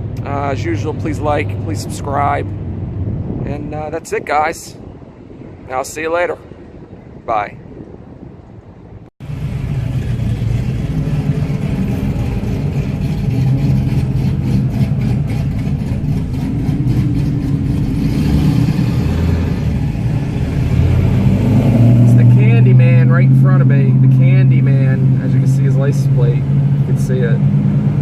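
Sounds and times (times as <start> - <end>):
car engine running: 9.2 - 20.4.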